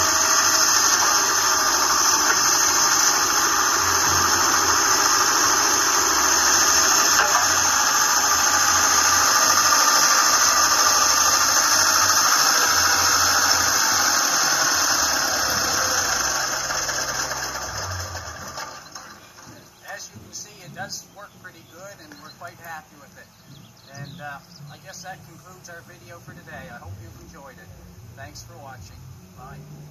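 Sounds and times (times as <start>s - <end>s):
high squealing whine: 0.0s - 22.9s
excavator engine drone: 0.0s - 29.9s.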